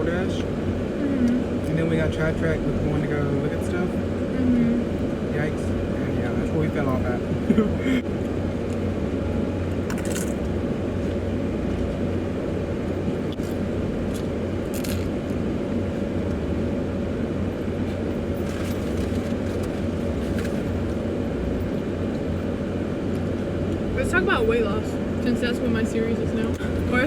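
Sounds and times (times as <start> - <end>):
car engine idling: 0.0 - 27.0
crunching chips: 18.4 - 20.9.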